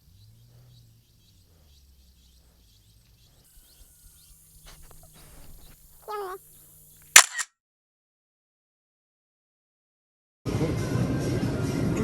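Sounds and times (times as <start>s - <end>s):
low steady outdoor hum: 0.0s - 7.2s.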